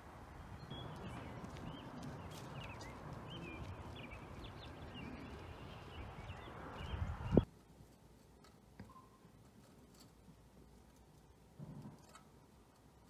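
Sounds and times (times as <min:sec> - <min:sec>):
outdoor background hiss: 0:00.0 - 0:13.0
small birds chirping: 0:00.3 - 0:07.5.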